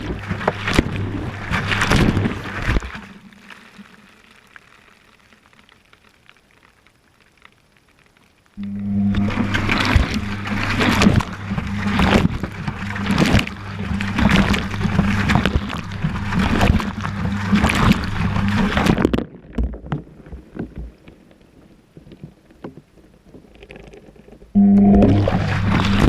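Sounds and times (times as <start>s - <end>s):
water and laundry sloshing: 0.0s - 4.0s, 8.6s - 21.2s, 21.9s - 26.0s
washing machine motor humming: 8.6s - 18.9s, 24.6s - 26.0s
faint drips and knocks: 10.9s - 24.6s.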